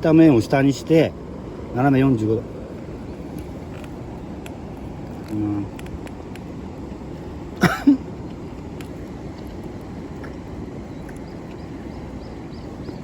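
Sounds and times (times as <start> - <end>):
steady outdoor noise: 0.0 - 13.0
crispy dumplings being chewed: 8.2 - 11.8.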